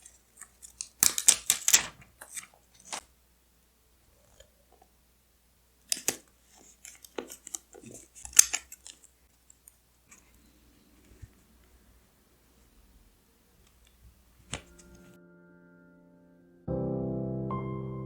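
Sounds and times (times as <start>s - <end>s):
scissors snipping paper: 0.0s - 3.1s, 5.8s - 10.4s.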